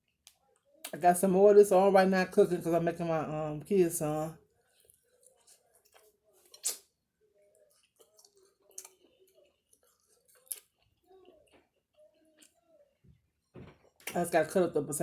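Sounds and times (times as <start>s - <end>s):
eating clicks and smacks: 4.8s - 6.9s, 7.7s - 12.6s.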